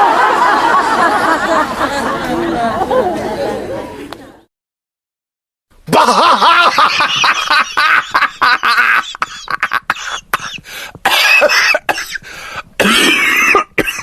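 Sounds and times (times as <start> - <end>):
person laughing hard: 5.9 - 11.8.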